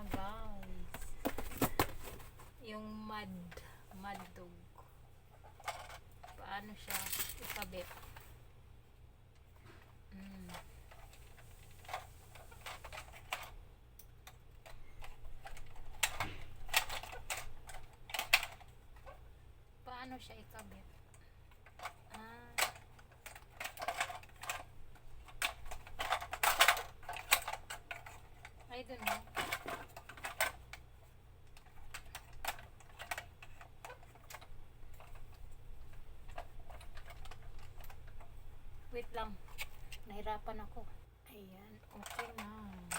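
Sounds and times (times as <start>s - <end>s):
plastic toy parts clicking: 5.5s - 8.2s, 10.2s - 19.2s, 21.5s - 30.9s, 31.5s - 38.3s, 41.8s - 42.9s.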